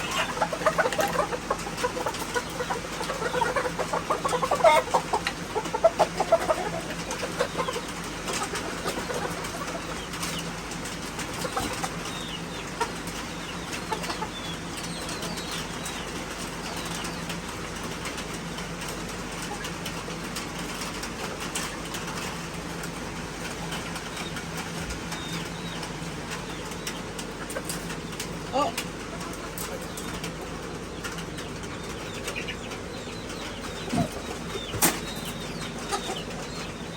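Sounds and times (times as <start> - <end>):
chickens flapping wings: 0.0 - 32.9
chickens calling: 0.0 - 36.9.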